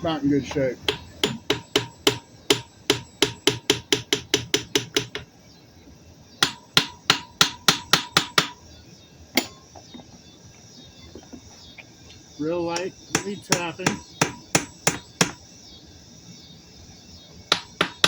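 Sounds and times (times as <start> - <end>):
hammer tapping on metal: 0.8 - 5.3.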